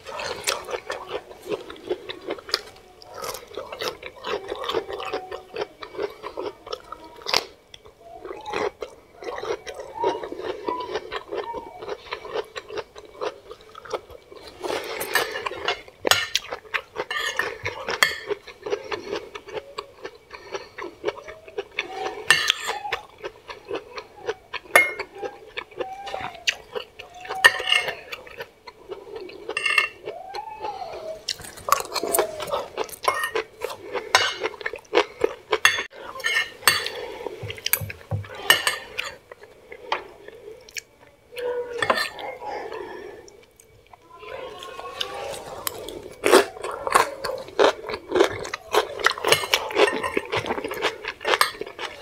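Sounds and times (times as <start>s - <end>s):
chewing and wet mouth sounds: 0.0s - 52.0s
forks clicking on a plate: 15.0s - 18.5s, 24.7s - 25.3s, 26.7s - 28.5s, 29.5s - 30.0s, 48.1s - 52.0s.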